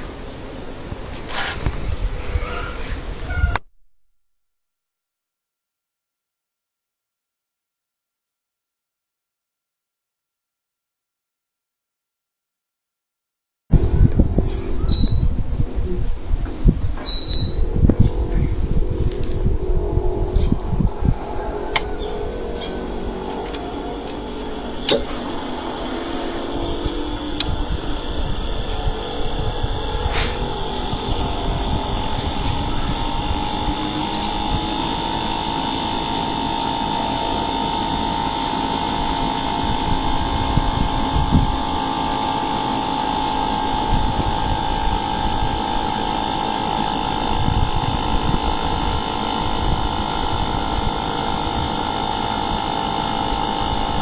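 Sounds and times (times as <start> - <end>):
constant high tone: 13.7 - 54.0
mid-pitched tone: 13.7 - 54.0
air conditioner humming: 13.8 - 54.0
sharp click: 24.8 - 25.3.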